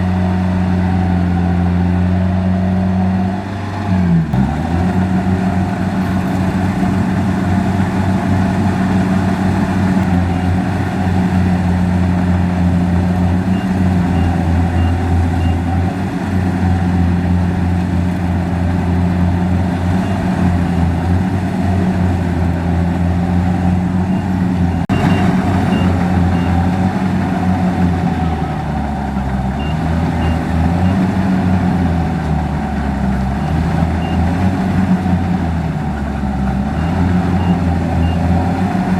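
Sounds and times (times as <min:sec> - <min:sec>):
combine harvester diesel engine: 0:00.0 - 0:38.9
faint short high beeps: 0:24.9 - 0:26.6.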